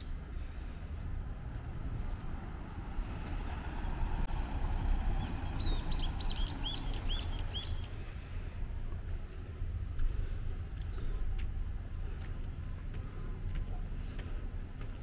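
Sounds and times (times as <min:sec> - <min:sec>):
low outdoor rumble: 0:00.0 - 0:15.0
small bird chirping: 0:05.2 - 0:08.0.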